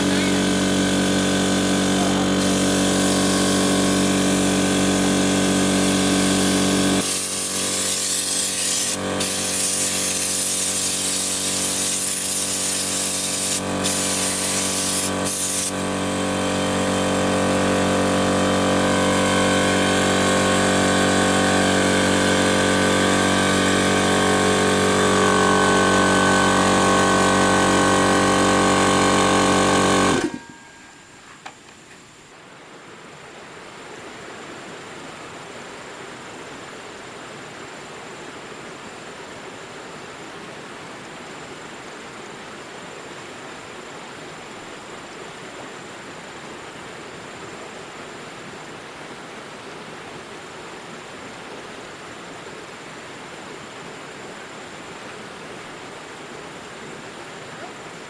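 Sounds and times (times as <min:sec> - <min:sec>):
power tool motor whine: 0:00.0 - 0:31.9
tool cutting into wood: 0:06.2 - 0:15.8, 0:21.3 - 0:30.7.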